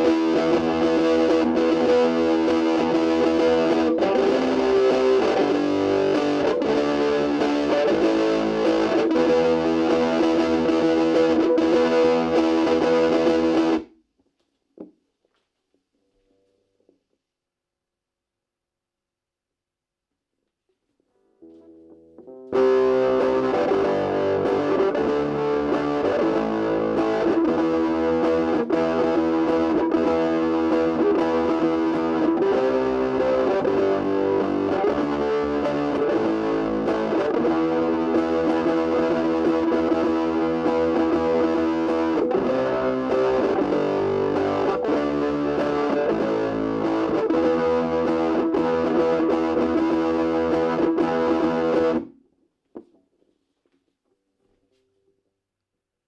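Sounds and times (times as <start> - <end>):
distorted electric guitar: 0.0 - 13.9, 21.4 - 52.2.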